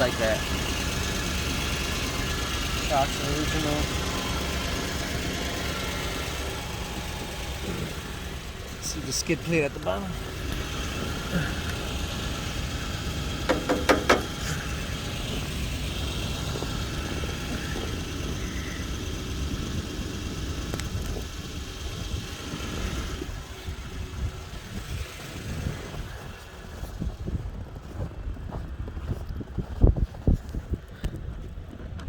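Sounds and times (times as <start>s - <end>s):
car engine idling: 0.0s - 32.0s
sharp knocks: 13.4s - 14.4s.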